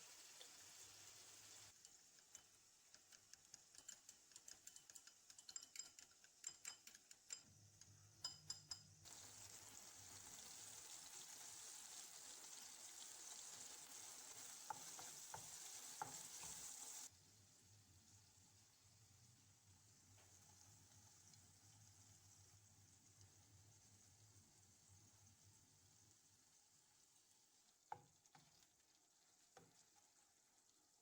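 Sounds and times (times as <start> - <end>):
food sizzling in a frying pan: 0.0 - 5.3, 7.2 - 31.0
utensil clicking against a pan: 1.8 - 8.9.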